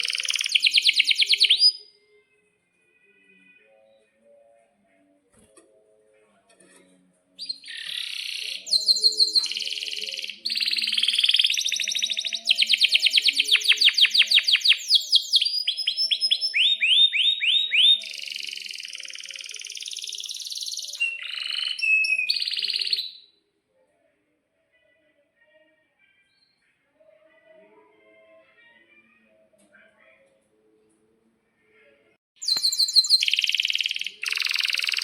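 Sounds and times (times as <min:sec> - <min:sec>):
canary singing trills: 0:00.0 - 0:02.2, 0:07.4 - 0:23.3, 0:32.4 - 0:35.0.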